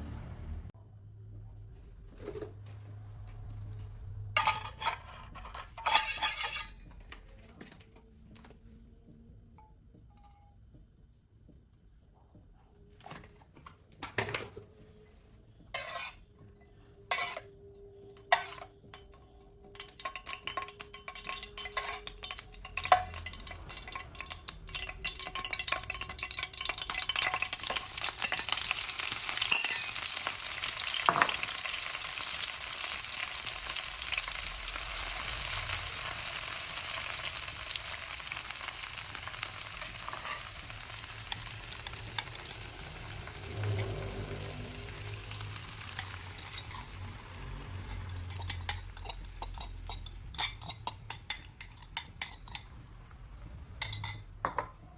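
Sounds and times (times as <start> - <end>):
eggs sizzling in a pan: 19.7 - 53.1.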